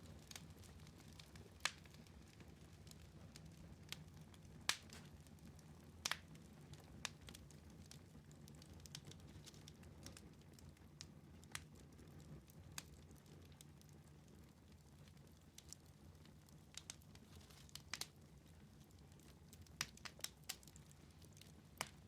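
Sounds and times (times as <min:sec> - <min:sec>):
low rumble of flames: 0:00.0 - 0:22.0
wood fire crackling: 0:00.0 - 0:22.0.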